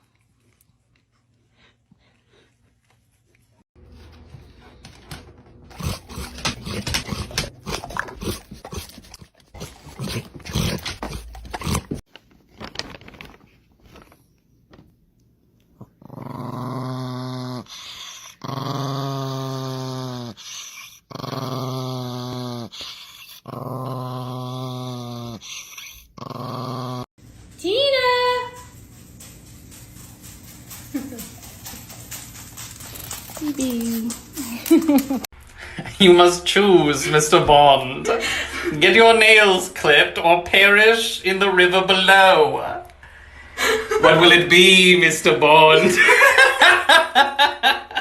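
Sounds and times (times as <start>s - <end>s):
dog growling: 5.7s - 12.0s, 15.8s - 27.1s.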